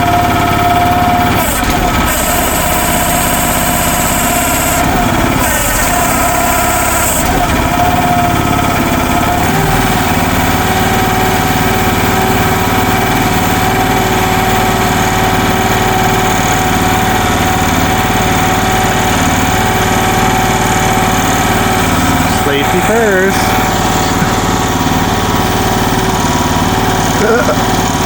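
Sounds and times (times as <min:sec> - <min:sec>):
excavator engine running: 0:00.0 - 0:28.0.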